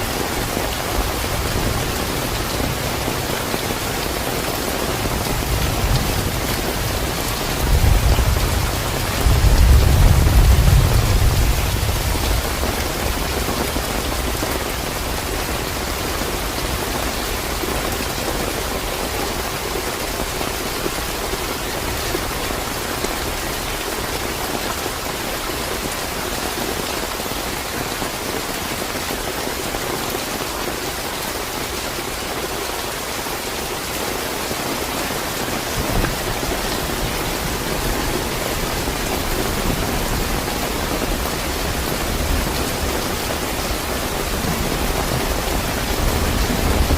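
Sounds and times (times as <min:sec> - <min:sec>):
heavy rain falling: 0:00.0 - 0:46.9
low thunder rumble: 0:05.2 - 0:14.4.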